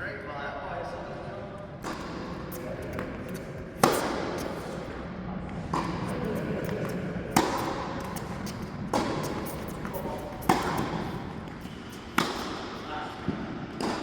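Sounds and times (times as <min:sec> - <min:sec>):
tennis ball hit by racket: 0:01.8 - 0:05.0, 0:05.6 - 0:12.9, 0:13.7 - 0:14.0.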